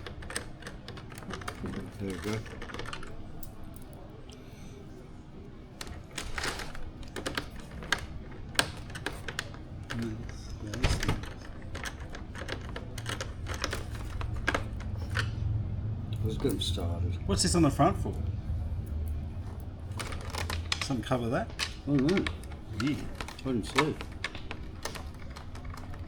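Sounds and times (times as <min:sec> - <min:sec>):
plastic parts clicking: 0:00.0 - 0:04.0, 0:05.8 - 0:15.4, 0:19.6 - 0:26.0
low steady hum: 0:00.0 - 0:26.0.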